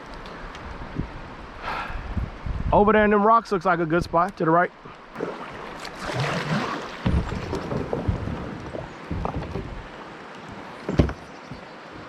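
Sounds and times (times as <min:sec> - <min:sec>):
paddle splashing water: 0:04.8 - 0:12.0
dull knocks: 0:07.0 - 0:09.9, 0:10.8 - 0:11.7.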